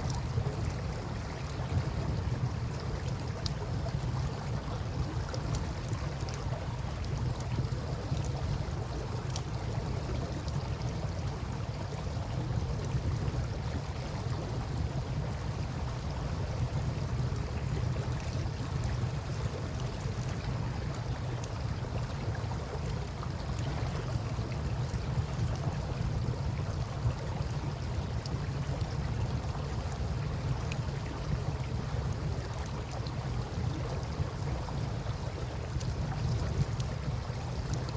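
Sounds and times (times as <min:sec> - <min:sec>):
campfire pops and crackles: 0:19.5 - 0:37.9.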